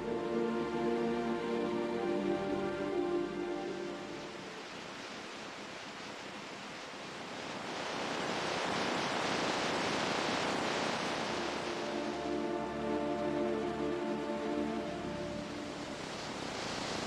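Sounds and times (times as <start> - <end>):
music: 0.0 - 4.6, 11.5 - 16.2
ocean waves washing in: 0.0 - 17.0.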